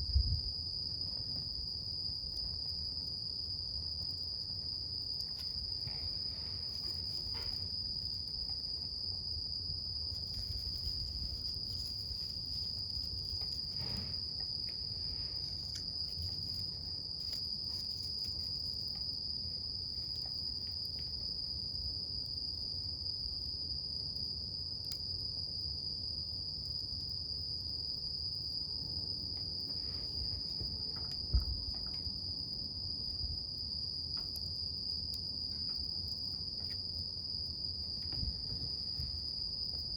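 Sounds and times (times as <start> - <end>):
crickets trilling: 0.0 - 39.9
campfire crackling: 3.9 - 20.9.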